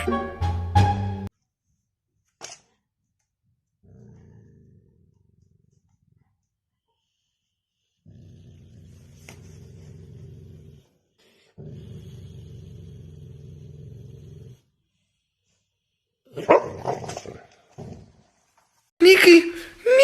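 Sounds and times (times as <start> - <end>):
dog growling: 3.7 - 6.5, 7.8 - 14.8
dog snarling and barking: 16.3 - 18.0.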